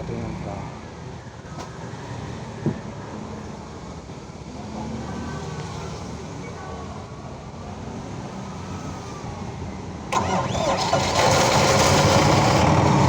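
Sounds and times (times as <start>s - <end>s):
faint distant voices: 0.0s - 10.3s.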